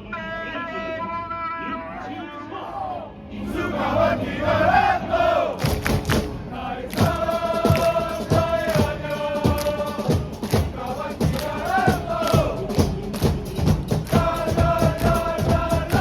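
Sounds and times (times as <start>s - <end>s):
crowd chanting: 1.9s - 16.0s
drum beating steadily: 5.6s - 16.0s.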